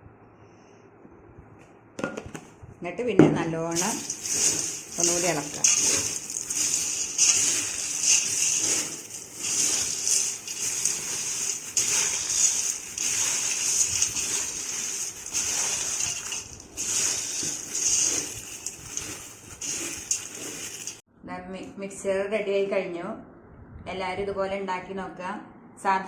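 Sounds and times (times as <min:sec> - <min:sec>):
crisp snack tossed in a bowl: 0:03.7 - 0:21.0.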